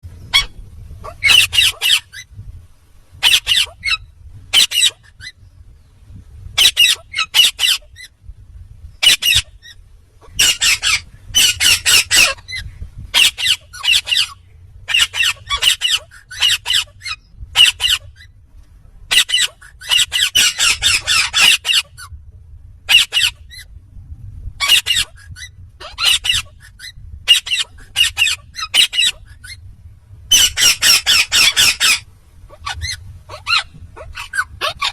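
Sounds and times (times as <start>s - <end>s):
faint low hum: 0.0s - 34.9s
parakeet squawking: 0.3s - 2.2s, 3.2s - 5.4s, 6.6s - 8.1s, 9.0s - 9.6s, 10.2s - 18.1s, 19.1s - 22.1s, 22.9s - 23.6s, 24.6s - 29.6s, 30.3s - 34.9s.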